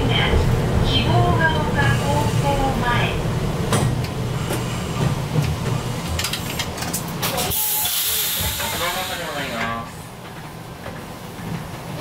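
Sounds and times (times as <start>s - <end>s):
train car rumbling to a stop: 0.0s - 12.0s
brake air hiss: 7.4s - 9.8s.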